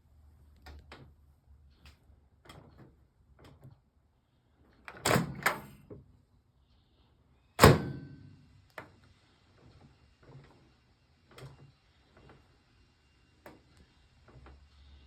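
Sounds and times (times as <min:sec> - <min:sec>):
microwave door latch clacks: 0:05.1 - 0:05.7, 0:07.6 - 0:08.2
microwave door banging shut: 0:07.6 - 0:08.3
brief metallic ring: 0:07.8 - 0:08.4.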